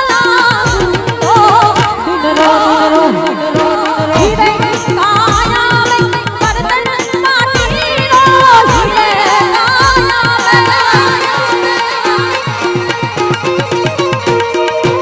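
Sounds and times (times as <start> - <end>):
fast drum beat: 0.0 - 1.9, 4.0 - 12.3.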